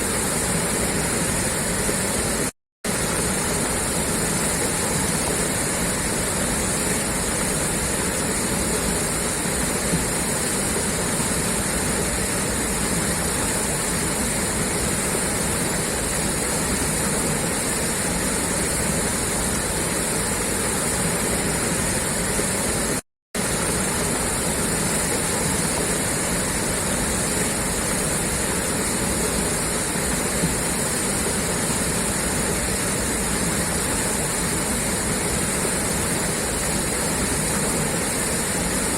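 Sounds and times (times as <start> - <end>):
water gushing from pipe: 0.0 - 38.9.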